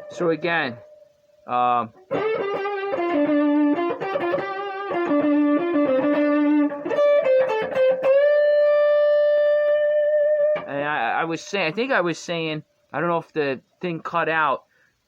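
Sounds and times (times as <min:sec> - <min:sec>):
electric guitar blues notes: 0:00.0 - 0:10.8.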